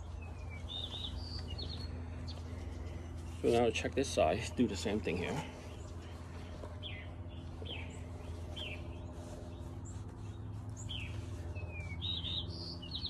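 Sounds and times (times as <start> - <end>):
steady low hum: 0.0 - 13.0
small bird chirping: 0.1 - 2.4, 5.7 - 13.0.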